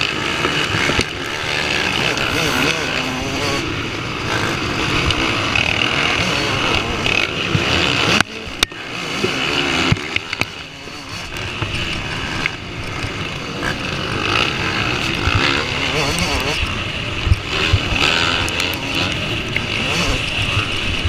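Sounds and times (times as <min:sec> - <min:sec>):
motocross motorcycle engines: 0:00.0 - 0:21.0.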